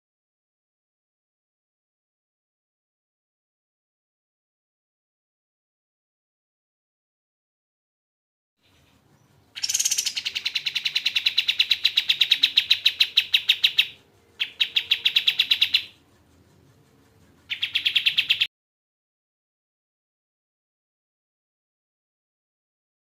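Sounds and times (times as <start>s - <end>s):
songbird trilling: 8.6s - 16.0s, 17.5s - 18.5s.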